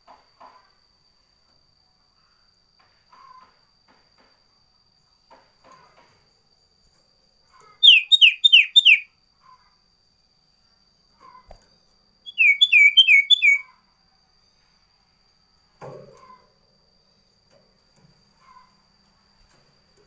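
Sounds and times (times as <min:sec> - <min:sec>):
bird calling shrill notes: 0:07.8 - 0:09.1, 0:12.2 - 0:13.8.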